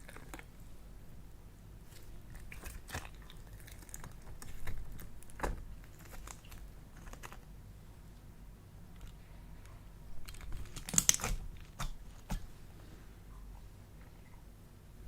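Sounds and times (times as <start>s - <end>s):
slime clicking and crackling: 0.0s - 0.5s, 1.9s - 7.5s, 10.2s - 12.5s.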